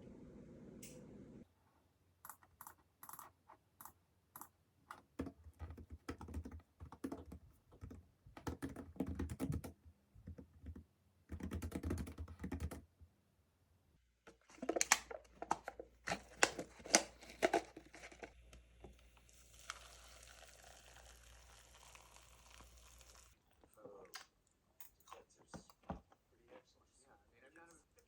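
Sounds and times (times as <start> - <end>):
typing on computer keyboard: 2.3 - 12.8.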